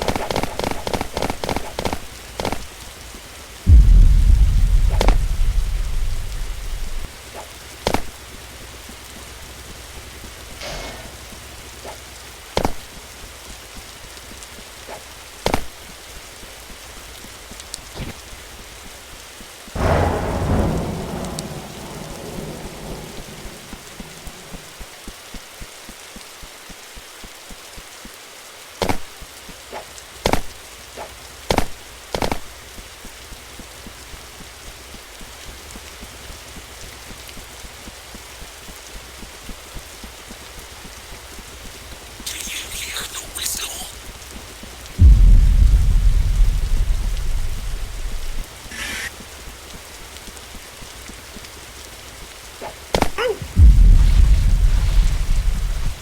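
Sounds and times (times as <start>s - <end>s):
steady hiss: 0.0s - 12.5s, 19.8s - 24.8s, 42.3s - 44.0s, 45.0s - 49.4s, 53.4s - 56.0s
low rumble: 3.7s - 7.2s, 19.8s - 24.7s, 45.0s - 48.6s, 53.4s - 56.0s.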